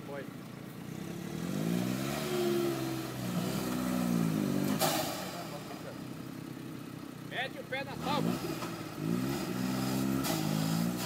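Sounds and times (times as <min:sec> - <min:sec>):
engine revving in mud: 0:00.9 - 0:05.9, 0:07.8 - 0:11.0.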